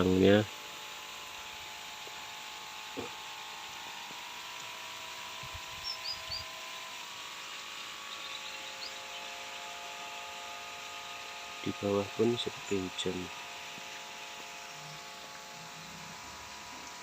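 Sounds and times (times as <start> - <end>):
bird chirping: 5.8 - 6.5, 8.0 - 9.7
heavy rain hissing: 11.6 - 13.4, 14.7 - 17.0.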